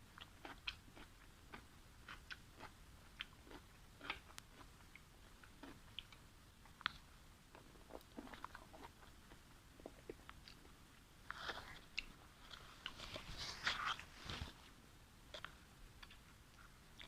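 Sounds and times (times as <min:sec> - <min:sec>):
person chewing food: 0:00.0 - 0:14.5, 0:15.3 - 0:17.0.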